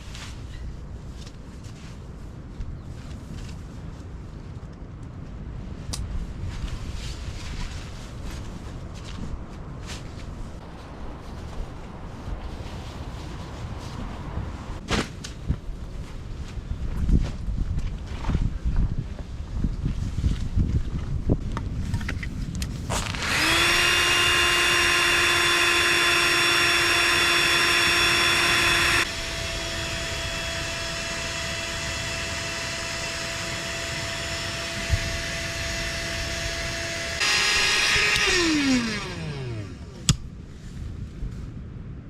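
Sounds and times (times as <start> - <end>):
electric motor whining: 22.9 - 40.2.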